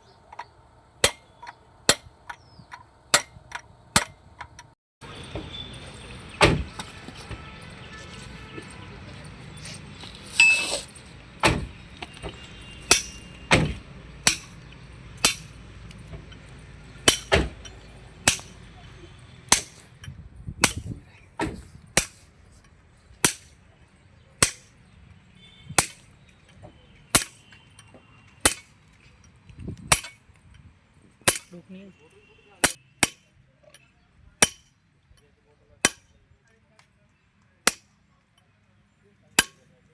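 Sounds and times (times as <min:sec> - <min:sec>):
hammer striking metal: 0:00.4 - 0:02.4, 0:03.1 - 0:04.2, 0:12.8 - 0:15.6, 0:17.0 - 0:18.6, 0:19.5 - 0:19.9, 0:20.6 - 0:20.9, 0:22.0 - 0:22.2, 0:23.2 - 0:23.6, 0:24.4 - 0:24.7, 0:25.8 - 0:26.1, 0:27.1 - 0:27.6, 0:28.4 - 0:28.8, 0:29.9 - 0:30.2, 0:31.3 - 0:31.6, 0:32.6 - 0:33.3, 0:34.4 - 0:34.7, 0:35.8 - 0:36.1, 0:37.7 - 0:37.9, 0:39.4 - 0:39.6.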